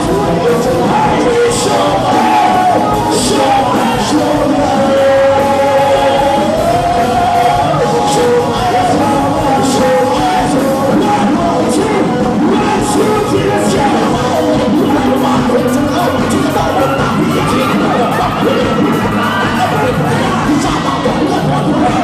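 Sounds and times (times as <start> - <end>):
rock music: 0.0 - 22.0
singer holding long notes: 0.0 - 22.0.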